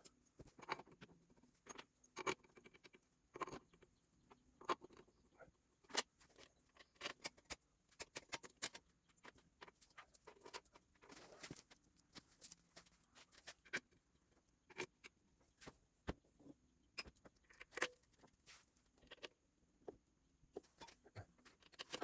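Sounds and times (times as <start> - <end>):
light clicks and clinks of tools: 6.4 - 13.8.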